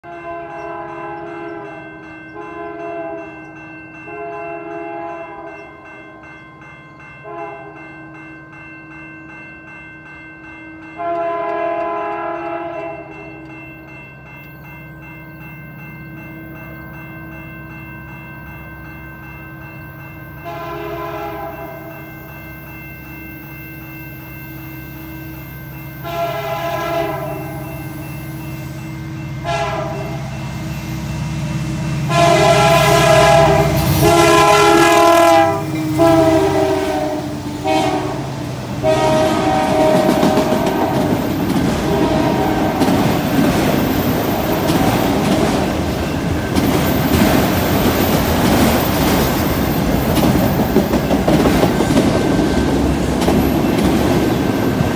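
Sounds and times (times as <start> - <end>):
locomotive horn blasts: 0.0 - 1.8, 2.4 - 3.3, 4.1 - 5.6, 7.2 - 7.8, 11.0 - 13.3, 20.4 - 22.0, 26.0 - 27.9, 29.4 - 30.4, 32.0 - 41.1, 41.8 - 42.9
freight cars clacking on rails: 38.8 - 54.9.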